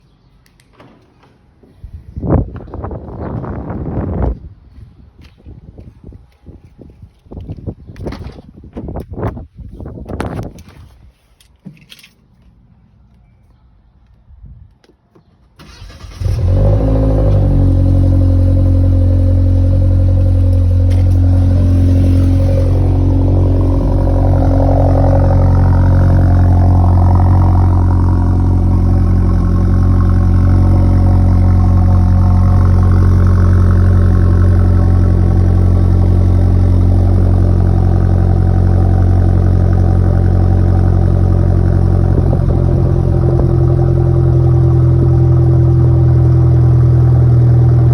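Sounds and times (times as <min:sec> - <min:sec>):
car engine idling loudly: 0:17.3 - 0:47.9.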